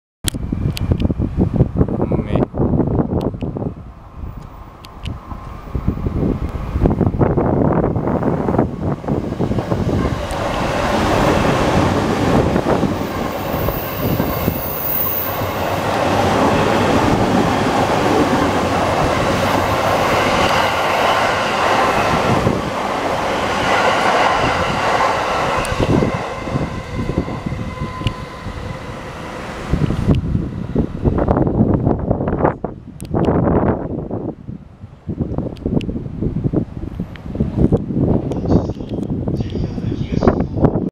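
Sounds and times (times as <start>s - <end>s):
train rushing past: 0.4s - 32.7s.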